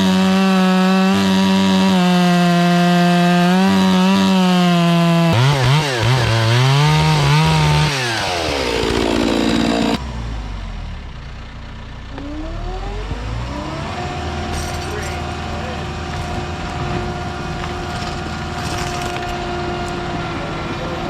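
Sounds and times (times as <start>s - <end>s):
chainsaw cutting wood: 0.0s - 10.0s, 12.2s - 20.2s
low engine rumble: 9.5s - 21.0s.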